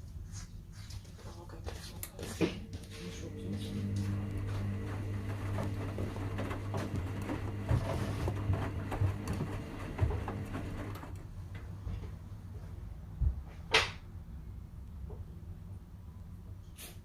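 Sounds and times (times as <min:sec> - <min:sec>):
washing machine motor hum: 0:03.0 - 0:11.4.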